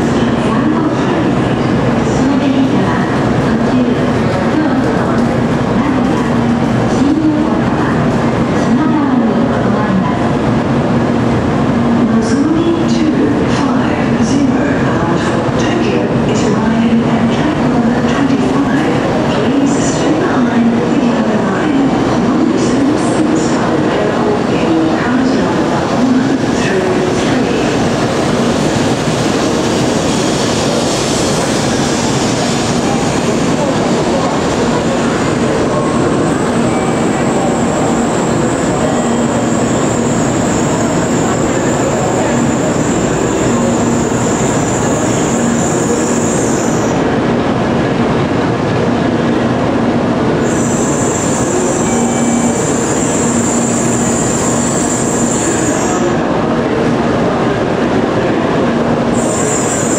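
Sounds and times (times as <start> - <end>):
high-speed train pulling in: 0.0 - 59.9.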